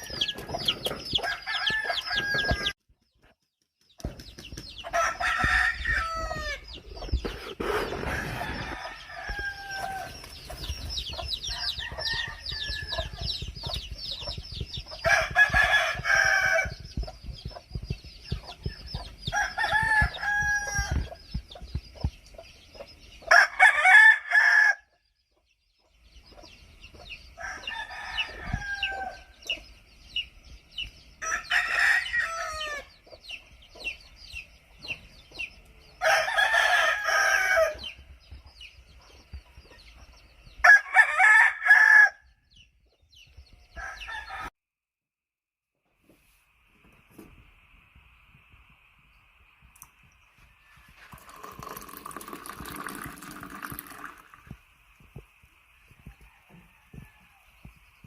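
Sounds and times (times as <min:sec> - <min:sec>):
roosters crowing: 0:00.0 - 0:02.8, 0:04.7 - 0:13.9, 0:15.0 - 0:17.0, 0:19.1 - 0:21.5, 0:23.3 - 0:25.0, 0:27.4 - 0:29.6, 0:31.2 - 0:33.0, 0:35.9 - 0:38.1, 0:40.6 - 0:42.4, 0:43.7 - 0:44.5, 0:55.9 - 0:57.9
chickens clucking: 0:00.0 - 0:03.3, 0:04.0 - 0:23.3, 0:25.3 - 0:31.0, 0:32.3 - 0:36.1.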